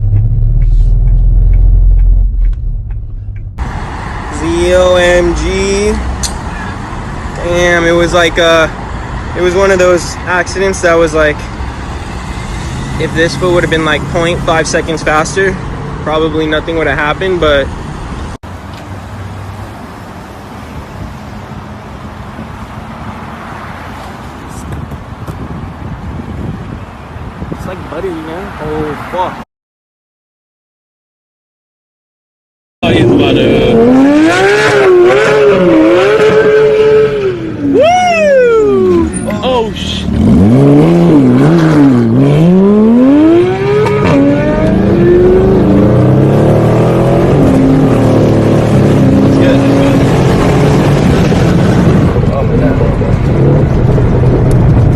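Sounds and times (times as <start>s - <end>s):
low engine hum: 0.0s - 4.3s
car engine revving: 0.0s - 8.5s, 32.8s - 37.8s, 38.6s - 54.9s
road and wind noise: 0.0s - 29.4s, 32.8s - 54.9s.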